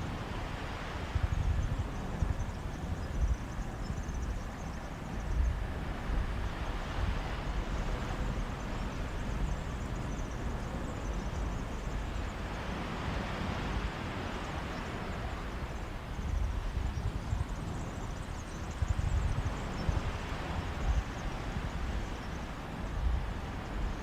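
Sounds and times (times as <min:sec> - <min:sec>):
wind gusting on microphone: 0:00.0 - 0:24.0.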